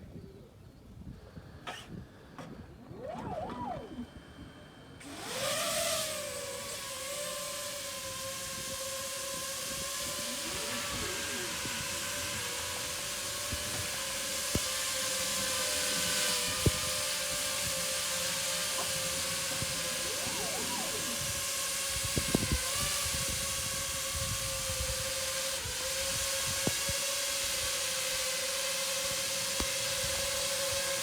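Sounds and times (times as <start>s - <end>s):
drone rotors humming: 0.7s - 31.0s
wind buffeting microphone: 8.1s - 27.0s.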